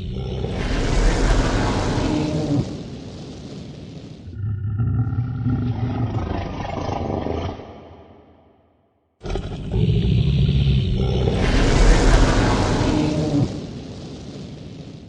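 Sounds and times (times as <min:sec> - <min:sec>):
deep creature roar: 0:00.0 - 0:02.8, 0:04.3 - 0:08.4, 0:09.2 - 0:13.7.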